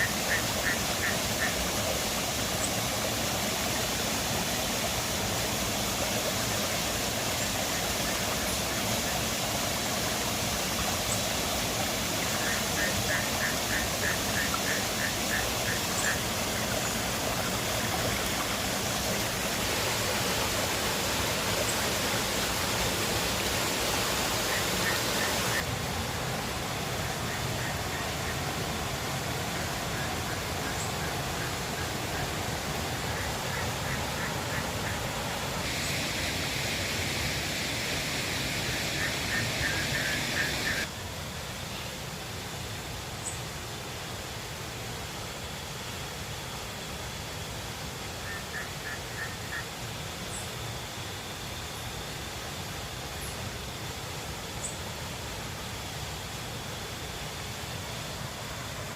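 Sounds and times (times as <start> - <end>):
river water rushing: 0.0 - 41.2.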